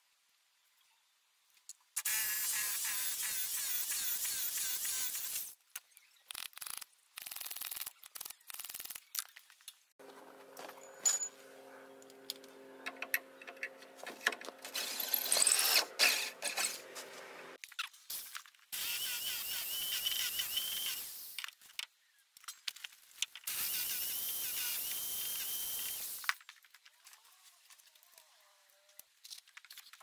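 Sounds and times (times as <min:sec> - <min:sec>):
clicks and scrapes: 0:05.7 - 0:18.5
hammer drill running: 0:18.8 - 0:21.3, 0:23.5 - 0:26.2.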